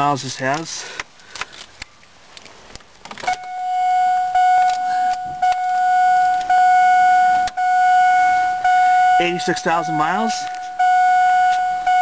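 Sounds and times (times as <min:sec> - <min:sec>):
clicks: 0:02.8 - 0:06.6, 0:09.5 - 0:12.0
dashboard warning chime: 0:03.3 - 0:12.0.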